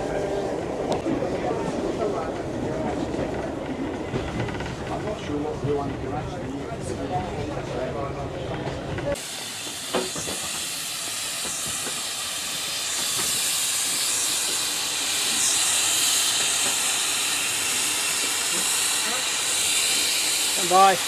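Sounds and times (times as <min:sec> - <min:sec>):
steam locomotive hissing: 0:09.1 - 0:21.0.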